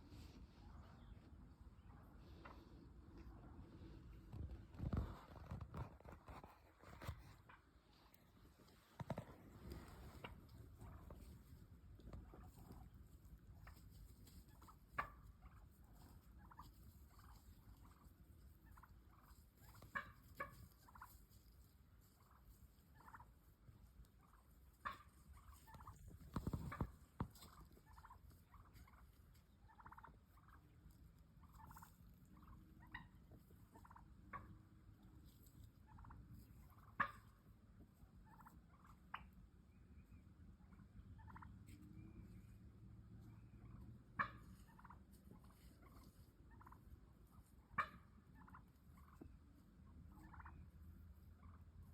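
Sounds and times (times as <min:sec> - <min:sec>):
turkey clucking and purring: 0:00.0 - 0:51.9.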